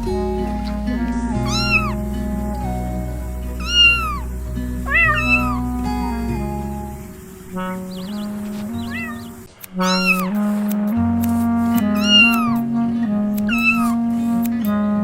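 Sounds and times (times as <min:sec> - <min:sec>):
gentle background music: 0:00.0 - 0:15.0
cat meowing: 0:01.4 - 0:02.0, 0:03.6 - 0:06.1, 0:07.7 - 0:10.4, 0:11.9 - 0:12.6, 0:13.4 - 0:14.0.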